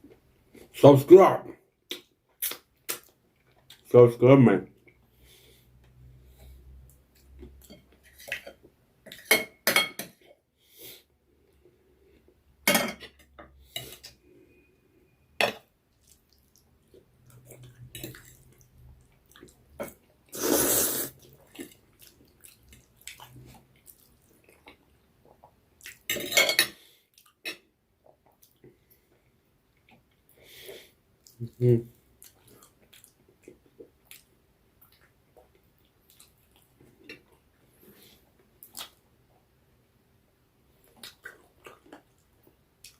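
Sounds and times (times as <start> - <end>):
utensils clinking on a plate: 26.1 - 26.8.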